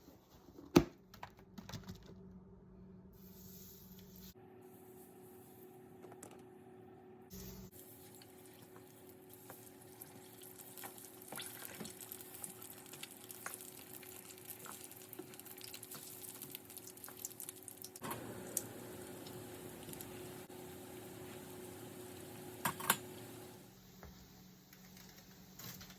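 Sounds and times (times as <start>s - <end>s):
oil sizzling and crackling: 7.3s - 23.6s.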